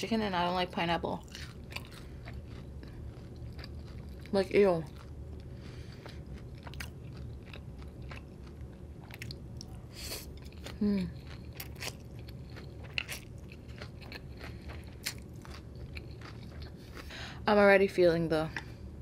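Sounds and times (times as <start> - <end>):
wet chewing clicks: 4.9 - 9.8.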